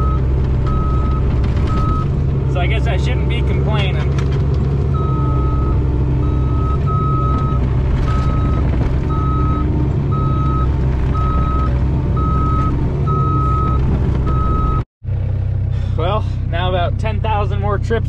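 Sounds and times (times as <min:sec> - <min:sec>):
excavator diesel engine running: 0:00.0 - 0:18.0
reversing alarm beeps: 0:05.0 - 0:14.8.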